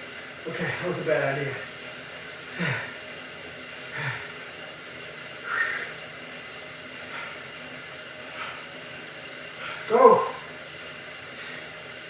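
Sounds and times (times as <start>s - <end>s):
steady hiss: 0.0s - 12.0s
man breathing hard: 2.3s - 10.6s
strained exhales: 5.4s - 6.1s.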